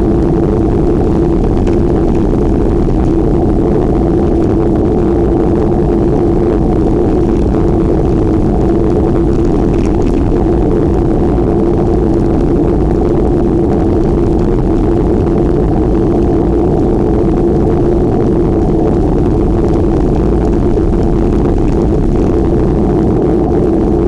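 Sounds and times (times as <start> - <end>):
steady hum: 0.0 - 24.0
wind rumble on microphone: 0.0 - 24.0.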